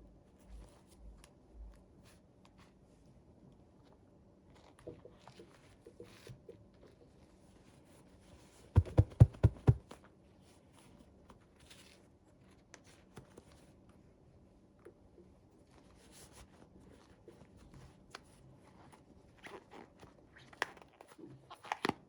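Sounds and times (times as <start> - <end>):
loud knocks: 8.8 - 9.8.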